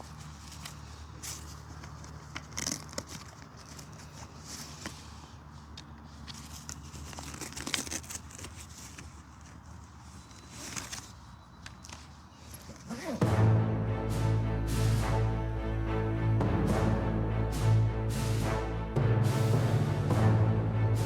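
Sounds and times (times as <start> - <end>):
bag rustling and crinkling: 0.0 - 13.2.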